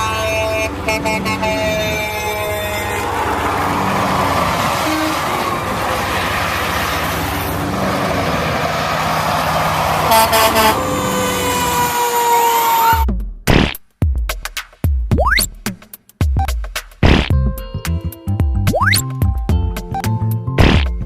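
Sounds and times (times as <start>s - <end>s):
vehicle horn toots: 0.0s - 3.0s, 4.8s - 5.7s, 10.0s - 11.6s
long falling horn blast: 0.0s - 6.6s, 10.0s - 13.0s
heavy vehicle engine: 0.0s - 13.0s.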